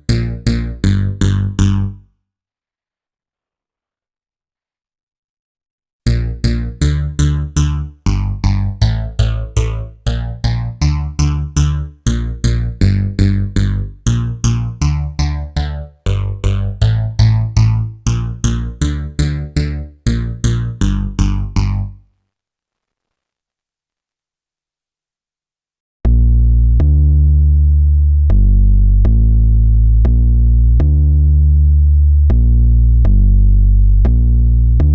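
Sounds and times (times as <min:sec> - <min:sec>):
plucked synthesizer notes: 0:00.0 - 0:02.1, 0:06.1 - 0:22.0, 0:26.1 - 0:34.9.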